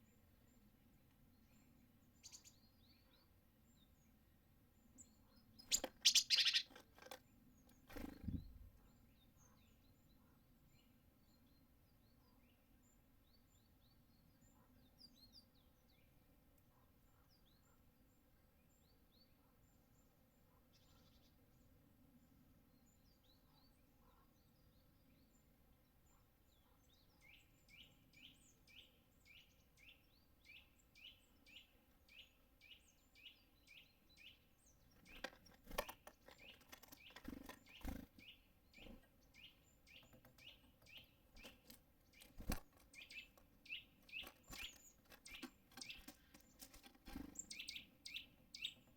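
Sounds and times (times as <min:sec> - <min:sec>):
faint bird chirps: 0:00.0 - 0:48.9
small bird calling: 0:01.6 - 0:03.4, 0:05.0 - 0:10.4, 0:26.1 - 0:48.9.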